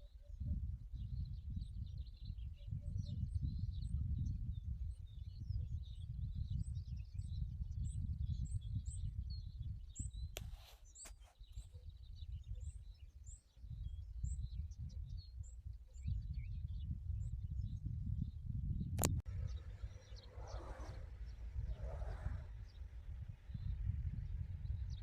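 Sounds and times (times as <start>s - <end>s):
small birds chirping: 0.0s - 18.4s, 19.2s - 25.0s
wind rumble on microphone: 0.0s - 25.0s.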